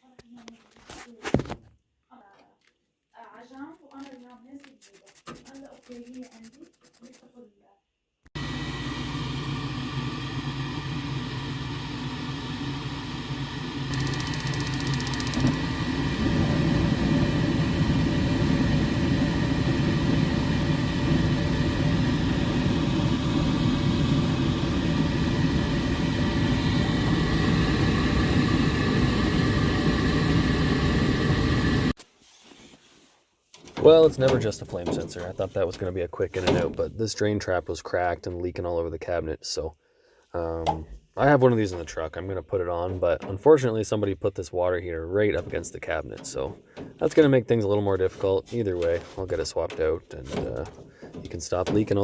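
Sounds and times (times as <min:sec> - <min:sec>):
furnace motor whirring: 0:08.4 - 0:32.0.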